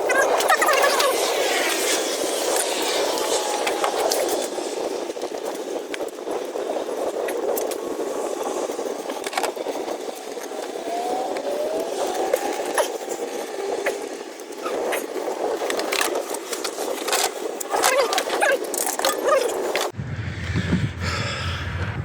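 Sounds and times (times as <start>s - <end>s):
steady rushing noise: 19.8s - 22.0s.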